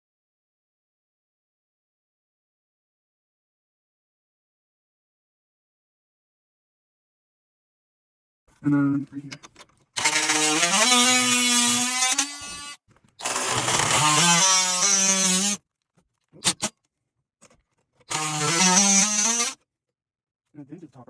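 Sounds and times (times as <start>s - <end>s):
power drill whining: 9.5s - 15.6s, 16.4s - 16.7s, 18.0s - 19.6s.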